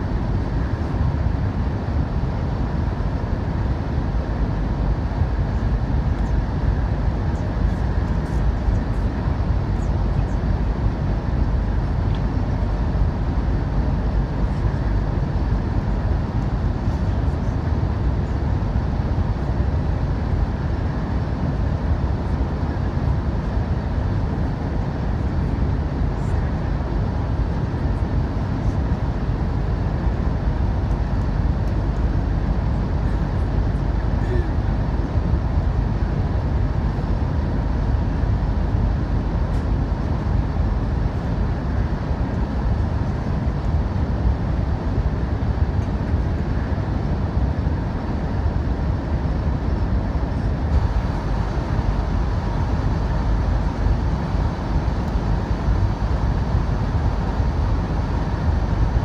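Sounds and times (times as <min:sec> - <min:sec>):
faint steady whine: 0:00.0 - 0:59.0
train wheels rumbling on track: 0:49.9 - 0:59.0.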